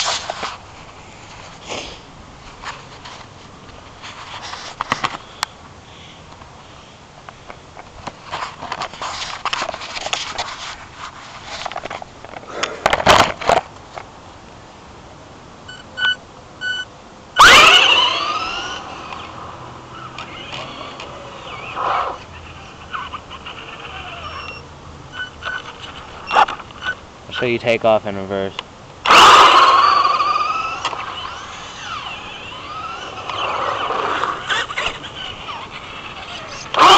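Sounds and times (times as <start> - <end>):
short beeps: 15.7 - 16.9
electric motor whining: 17.4 - 25.6, 29.1 - 36.9.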